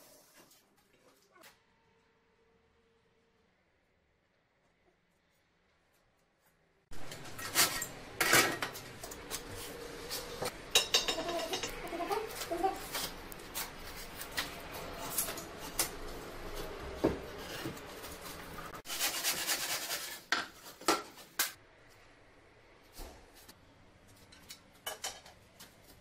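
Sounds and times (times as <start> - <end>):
metal tools scraping and clinking: 7.0 - 13.1, 13.9 - 16.6.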